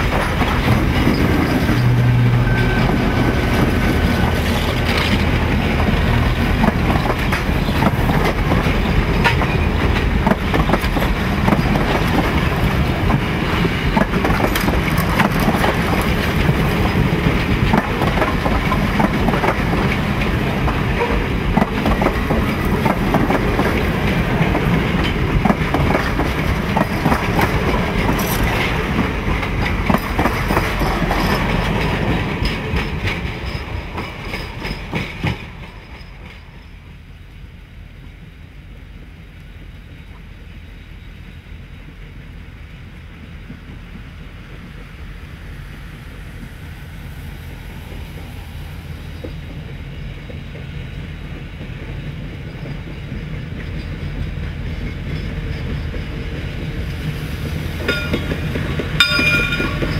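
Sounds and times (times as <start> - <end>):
wheels clicking over rail joints: 0.0 - 36.8, 49.2 - 59.9
train wheels rumbling on rails: 0.0 - 59.9.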